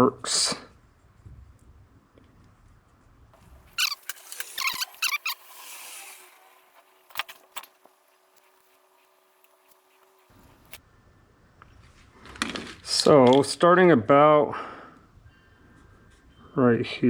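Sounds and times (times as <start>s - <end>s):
paint pen scratching on metal: 3.8s - 6.5s.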